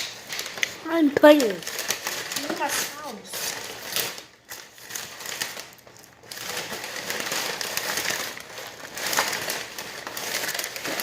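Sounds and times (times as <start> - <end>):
crinkling and rustling: 0.0 - 11.0.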